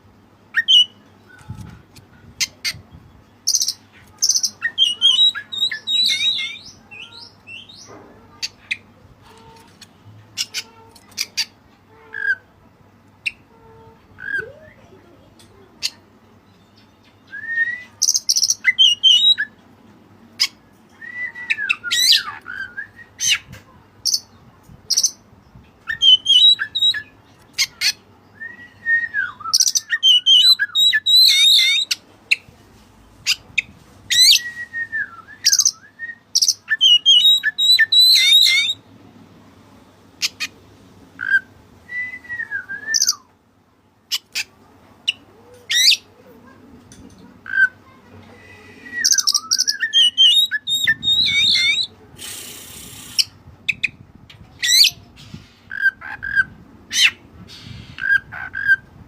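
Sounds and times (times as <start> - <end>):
bird singing varied song: 0.5 - 8.9, 14.2 - 19.6, 20.4 - 32.4, 33.3 - 38.8, 41.2 - 43.3, 48.8 - 51.9.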